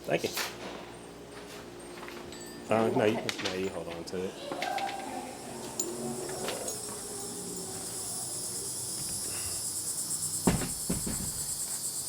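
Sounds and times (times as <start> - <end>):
insects buzzing: 4.3 - 12.0
loud thump: 10.4 - 11.5.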